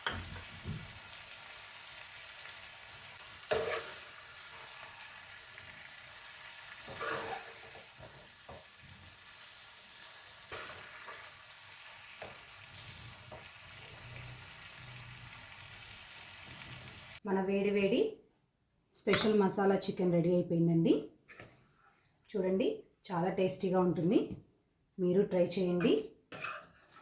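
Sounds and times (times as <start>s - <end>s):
chicken sizzling in a pan: 0.0s - 17.2s
spoon scraping a pan: 3.2s - 5.3s, 6.7s - 8.8s, 10.5s - 14.2s, 21.3s - 21.7s, 25.8s - 27.0s.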